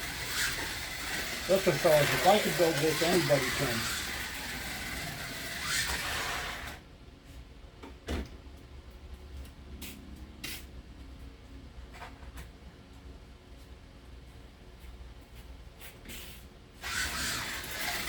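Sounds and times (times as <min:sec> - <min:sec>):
slot car motor rushing: 0:00.0 - 0:06.8, 0:16.8 - 0:18.0.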